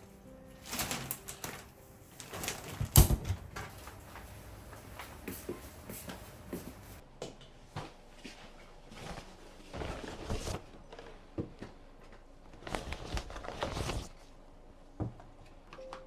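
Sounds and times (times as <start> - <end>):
rustling and handling: 0.0 - 7.0.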